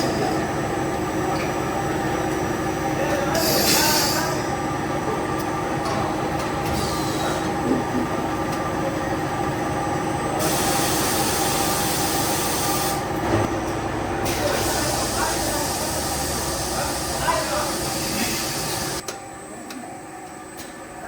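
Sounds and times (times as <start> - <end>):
factory machinery hum: 0.0 - 21.0
air hiss: 3.4 - 4.4, 10.4 - 13.0, 14.2 - 19.0.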